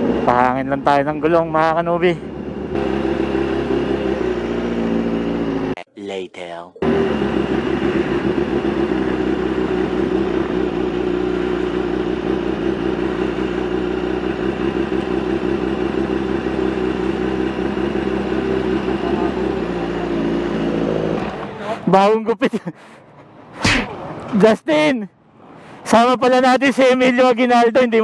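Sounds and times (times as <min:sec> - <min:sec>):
motorcycle engine running: 0:00.0 - 0:05.8, 0:06.8 - 0:21.8.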